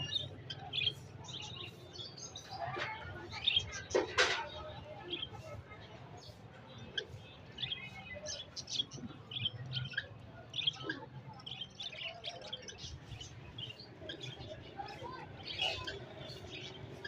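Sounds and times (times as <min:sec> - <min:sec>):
budgerigars chirping: 0:06.8 - 0:17.0.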